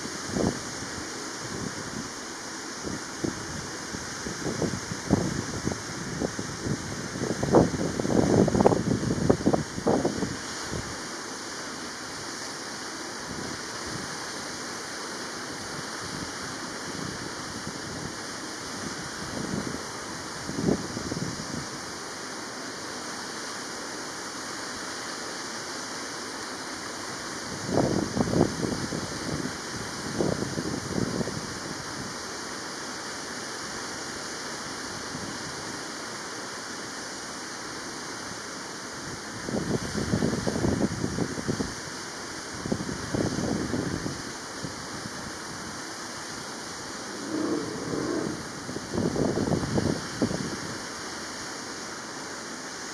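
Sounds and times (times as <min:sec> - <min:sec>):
wind rumble on microphone: 0:00.0 - 0:11.0, 0:15.5 - 0:21.9, 0:27.4 - 0:32.2, 0:39.2 - 0:41.8, 0:42.6 - 0:45.8, 0:46.7 - 0:50.9
rushing outdoor ambience: 0:00.0 - 0:52.9
steady rushing noise: 0:44.1 - 0:50.6.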